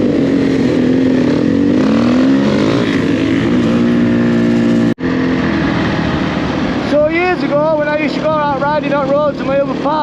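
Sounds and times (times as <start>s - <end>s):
motorcycle engine revving: 0.0s - 10.0s
noisy rush: 0.0s - 10.0s.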